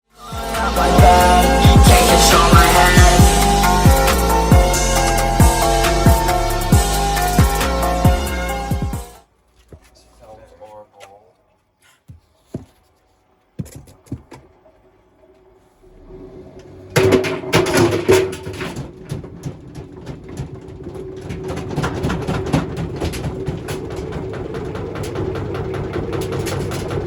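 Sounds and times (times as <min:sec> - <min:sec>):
machine running with rattling: 0:00.3 - 0:09.2, 0:15.8 - 0:27.0
clicks and knocks: 0:16.6 - 0:27.0.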